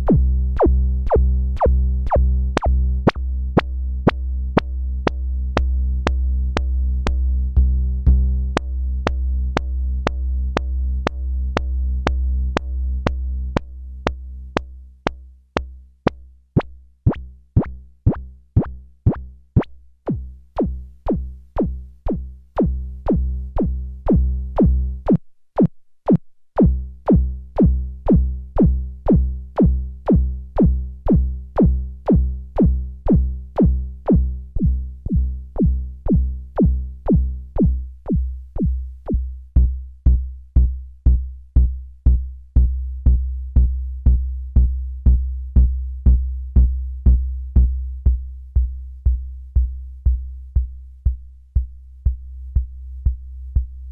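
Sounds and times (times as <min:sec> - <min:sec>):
deep pulsing synth bass: 0:00.0 - 0:15.8, 0:16.6 - 0:53.9
sharp drum-machine hits: 0:20.1 - 0:38.8.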